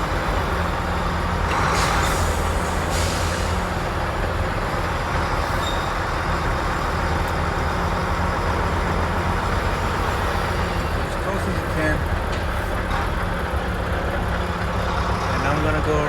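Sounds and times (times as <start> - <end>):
truck diesel engine running: 0.0 - 16.0
air brake hisses: 1.6 - 3.7.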